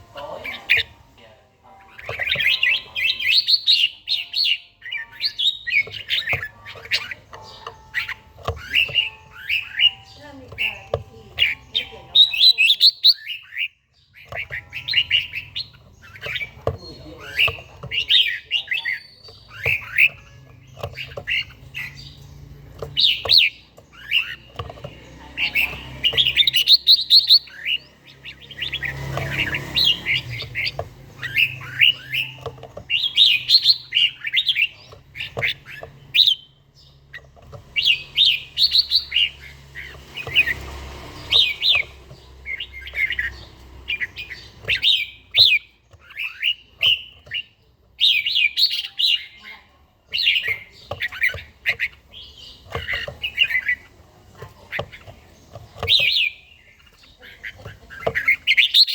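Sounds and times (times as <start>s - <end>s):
bird warbling phrases: 0.0s - 22.1s.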